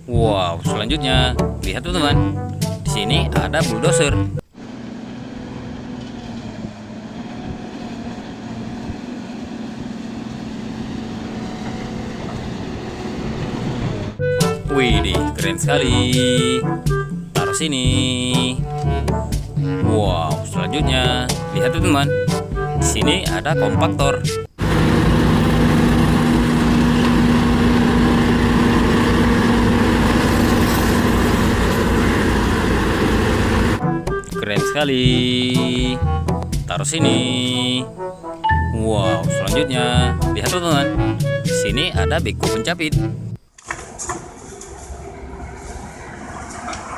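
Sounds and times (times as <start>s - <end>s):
bulldozer engine running: 4.5s - 14.6s, 24.4s - 33.8s.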